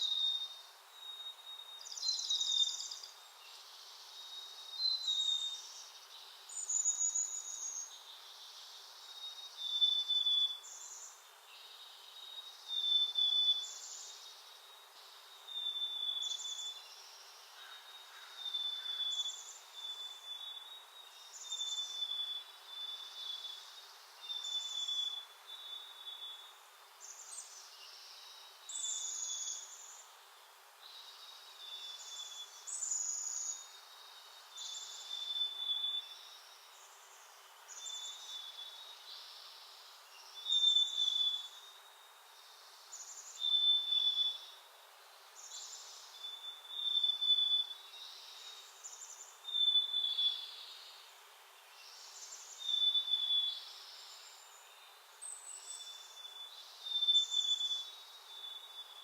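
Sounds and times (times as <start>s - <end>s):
songbird calling high whistle: 40.4s - 41.6s, 43.4s - 44.5s, 45.7s - 47.8s, 49.5s - 50.6s, 52.0s - 53.7s, 55.7s - 59.0s.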